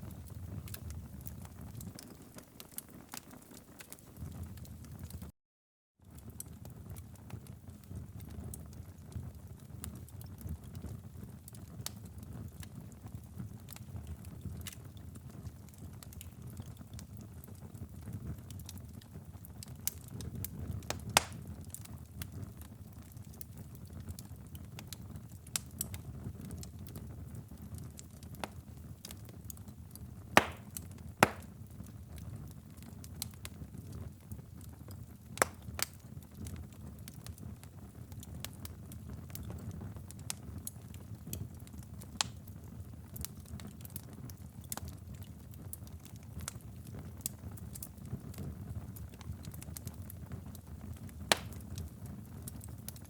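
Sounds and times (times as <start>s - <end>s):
low rumble of burning: 0.0s - 5.3s, 6.0s - 53.0s
wood fire crackling and popping: 0.0s - 5.3s, 6.1s - 53.0s.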